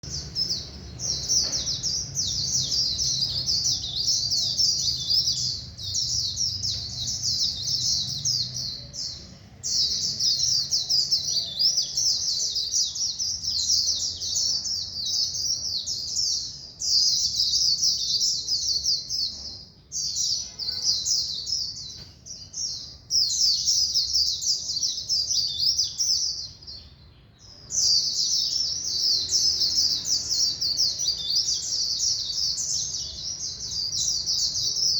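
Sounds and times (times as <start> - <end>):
bird twittering song: 0.0 - 34.9.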